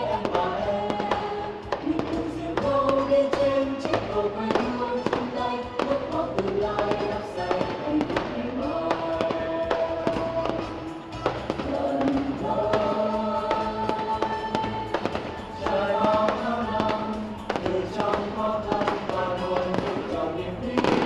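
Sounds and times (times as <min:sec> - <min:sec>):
fireworks bursting and crackling: 0:00.0 - 0:21.0
music with long held notes: 0:00.0 - 0:21.0.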